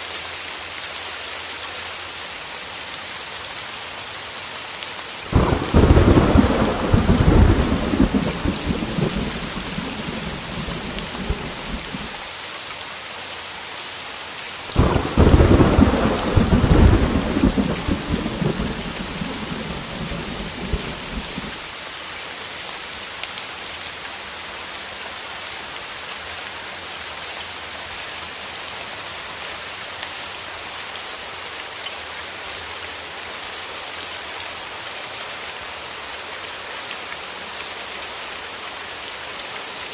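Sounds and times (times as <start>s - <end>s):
heavy rain falling: 0.0s - 39.9s
thunder rumbling: 5.3s - 12.2s, 14.8s - 21.6s.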